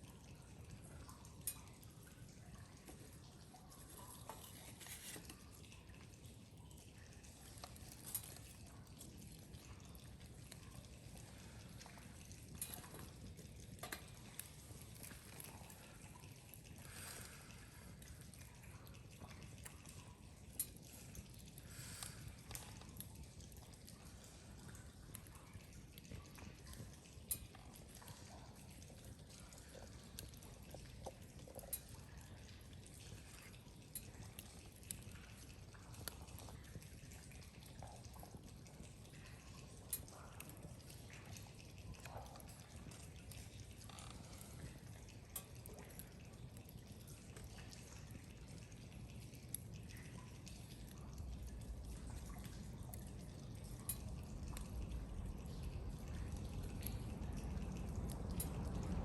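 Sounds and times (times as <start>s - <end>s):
low steady rumble: 49.6s - 59.0s.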